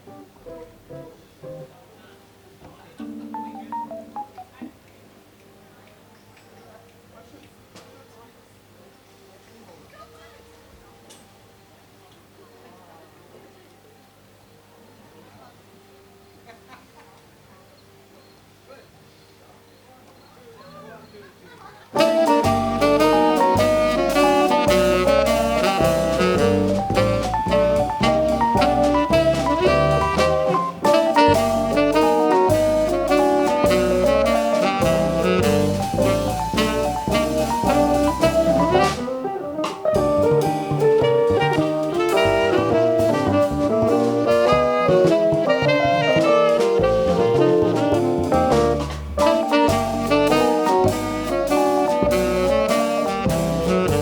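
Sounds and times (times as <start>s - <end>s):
jazz band playing: 0.0s - 1.7s, 3.0s - 4.5s, 22.0s - 54.0s
bass line: 22.0s - 39.2s, 39.9s - 54.0s
drum kit: 22.0s - 54.0s.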